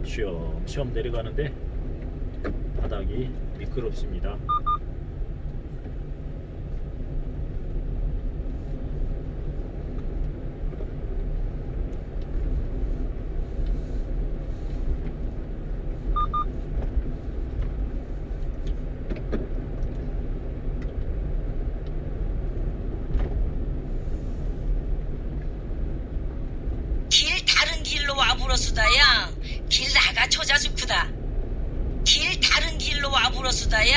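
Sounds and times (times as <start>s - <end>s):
truck engine and tyres rumbling: 0.0s - 33.9s
short electronic beep: 16.2s - 16.5s.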